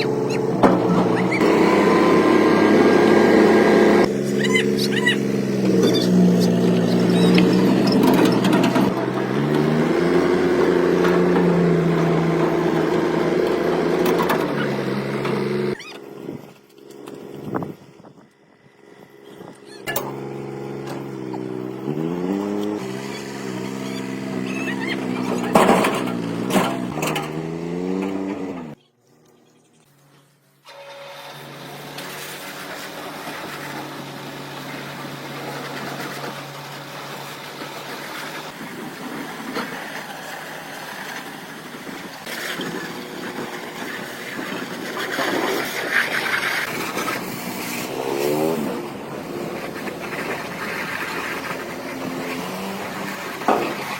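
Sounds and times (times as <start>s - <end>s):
motor running: 0.0s - 26.6s.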